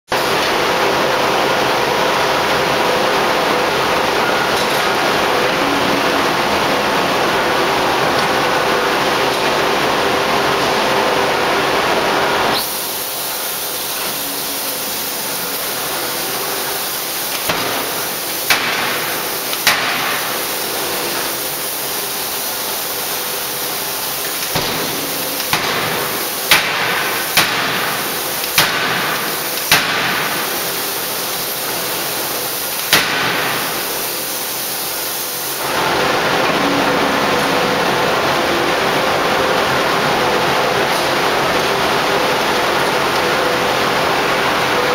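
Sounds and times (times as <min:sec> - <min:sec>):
steady hiss: 0:12.5 - 0:36.4.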